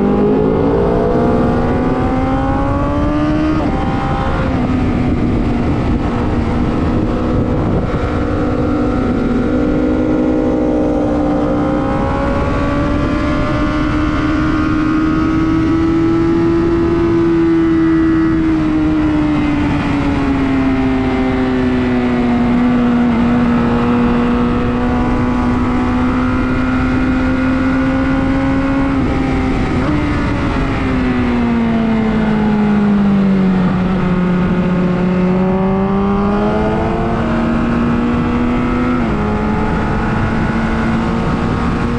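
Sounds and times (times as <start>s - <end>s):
sport motorcycle engine revving: 0.0s - 19.0s, 33.7s - 41.9s.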